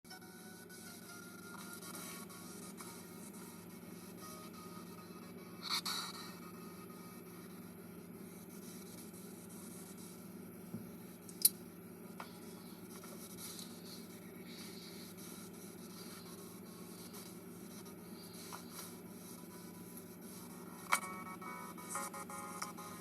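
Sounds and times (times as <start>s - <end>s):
low room hum: 0.1s - 23.0s.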